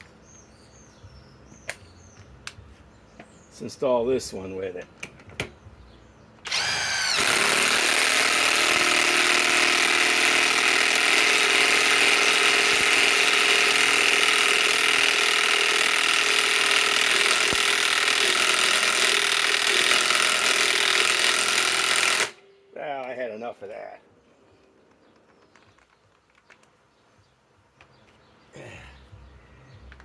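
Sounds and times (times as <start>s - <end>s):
impact wrench hammering: 6.5s - 22.4s.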